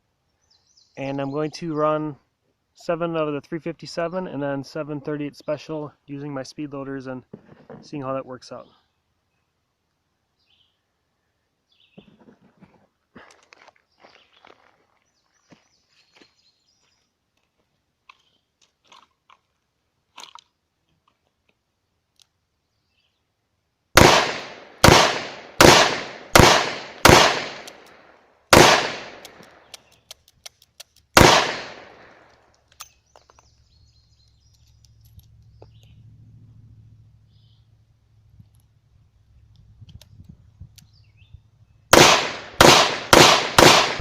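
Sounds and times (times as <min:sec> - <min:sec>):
revolver shots with ringing echo: 0:24.0 - 0:27.8, 0:28.5 - 0:29.3, 0:31.2 - 0:32.2, 0:41.9 - 0:44.0
faint revolver clicks: 0:27.4 - 0:28.0, 0:28.8 - 0:31.9.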